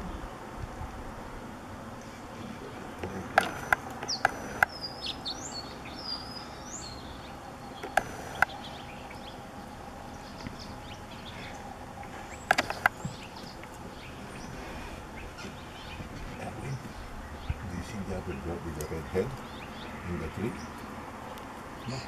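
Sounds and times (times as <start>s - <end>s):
high sliding bird chirps: 3.4s - 16.0s
short sharp clicks: 12.5s - 13.0s.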